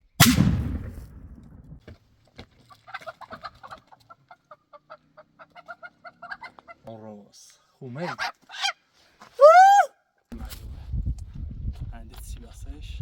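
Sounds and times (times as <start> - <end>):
loud thump: 0.2 - 1.8
fowl clucking: 2.7 - 6.8, 8.0 - 8.8.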